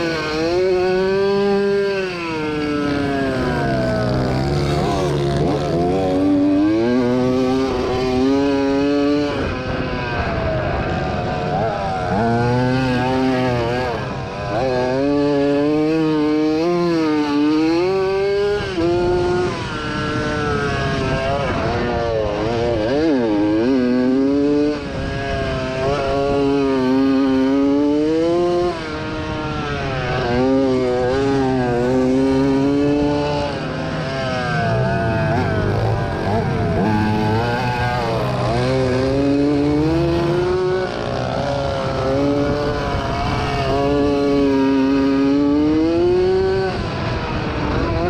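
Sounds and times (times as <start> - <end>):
two-stroke motocross engine revving: 0.0 - 48.0.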